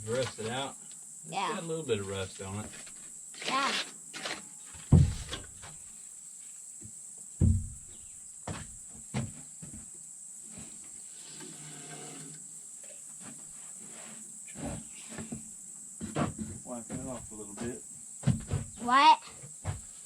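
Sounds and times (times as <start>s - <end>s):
insects buzzing: 0.0s - 20.0s
dull knocks: 4.8s - 5.8s, 7.4s - 9.9s, 16.0s - 18.9s, 19.5s - 20.0s.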